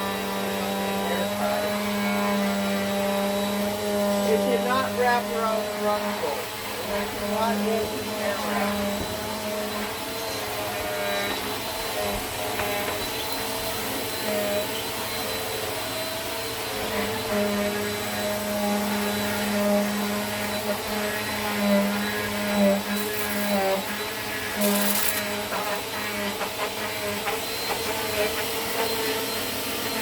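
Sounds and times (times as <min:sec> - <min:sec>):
vacuum cleaner running on carpet: 0:00.0 - 0:30.0.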